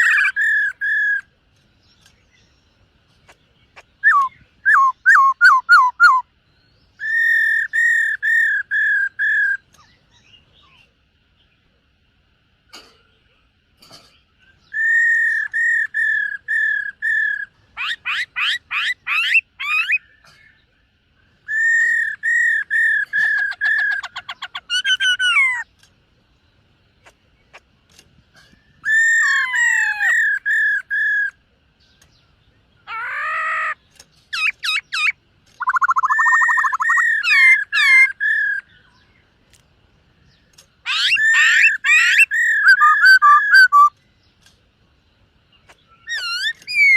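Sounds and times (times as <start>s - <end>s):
bird singing whistled notes: 3.7s - 10.9s, 14.4s - 20.6s, 21.3s - 25.7s, 28.4s - 39.4s, 40.2s - 44.4s, 45.6s - 46.9s.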